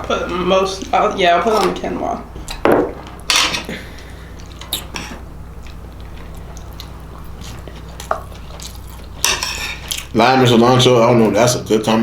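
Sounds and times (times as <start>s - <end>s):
low electrical hum: 0.0s - 12.0s
person chewing food: 3.5s - 10.2s.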